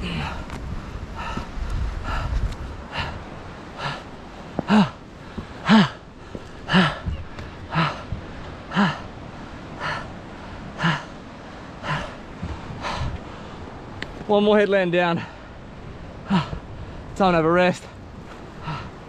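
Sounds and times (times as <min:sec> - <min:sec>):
man breathing hard: 0:00.0 - 0:13.8, 0:16.2 - 0:17.2, 0:18.5 - 0:19.0
man grunting: 0:04.6 - 0:05.0, 0:05.6 - 0:06.0, 0:06.7 - 0:07.1.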